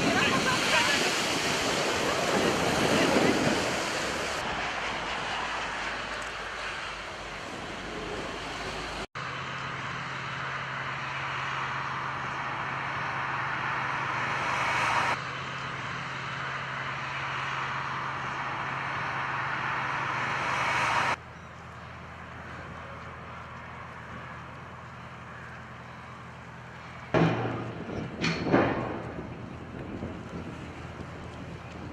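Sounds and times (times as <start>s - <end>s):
rushing noise: 0.0s - 9.1s, 17.6s - 21.2s
low engine hum: 0.0s - 31.9s.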